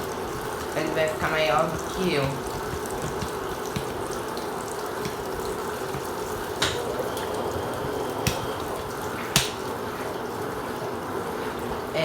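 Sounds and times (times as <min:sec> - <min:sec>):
water sloshing: 0:00.0 - 0:10.3
washing machines running: 0:00.0 - 0:12.0
faint hum: 0:03.5 - 0:12.0.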